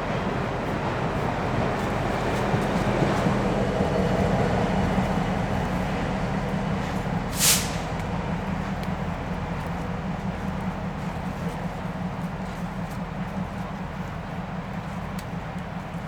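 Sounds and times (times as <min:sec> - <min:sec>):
steam train rumbling by: 0:00.0 - 0:16.0
sharp steam hiss: 0:07.3 - 0:08.0.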